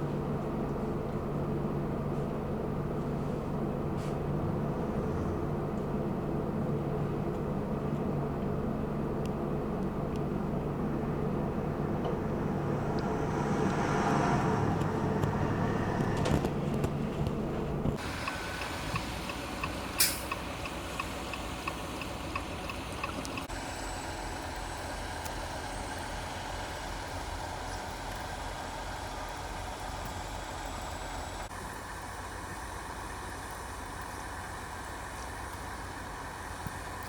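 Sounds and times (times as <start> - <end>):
traffic on snowy highway: 0.0 - 37.0
even ticking: 17.9 - 23.5.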